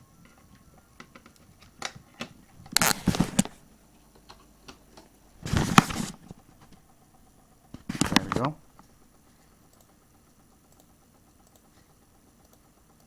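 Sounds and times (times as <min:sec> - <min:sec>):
hardware clicks and taps: 0:00.2 - 0:03.6, 0:07.8 - 0:09.0.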